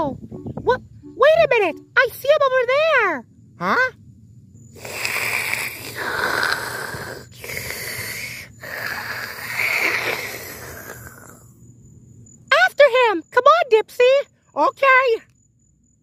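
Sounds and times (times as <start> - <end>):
breathy sucking wheezing noises: 4.7 - 11.5.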